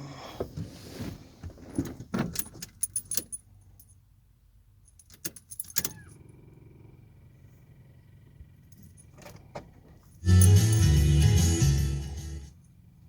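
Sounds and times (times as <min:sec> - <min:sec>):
keys jangling and clicking: 0:02.3 - 0:04.0, 0:04.8 - 0:06.1, 0:10.1 - 0:11.0.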